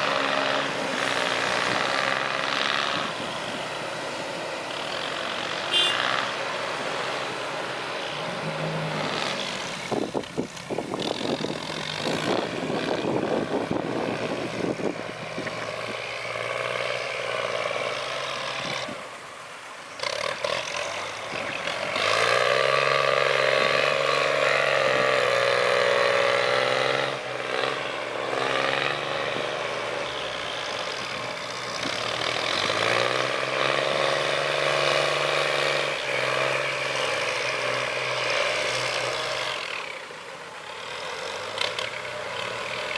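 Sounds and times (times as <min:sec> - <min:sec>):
heavy diesel engine under load: 0:00.0 - 0:42.9.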